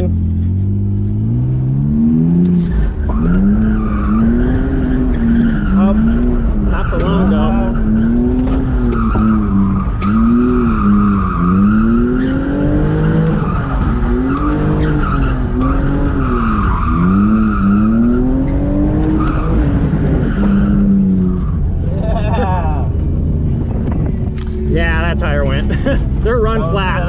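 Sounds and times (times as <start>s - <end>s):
car engine revving: 0.0s - 27.0s
tire squeal: 2.6s - 22.0s.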